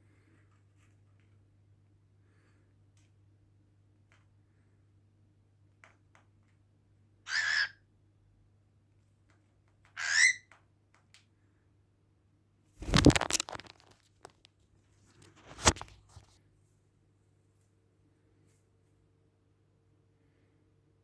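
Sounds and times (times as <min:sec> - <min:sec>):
cockatiel chirp: 0:07.3 - 0:07.8, 0:10.0 - 0:10.5
rustling and knocking: 0:12.8 - 0:14.4.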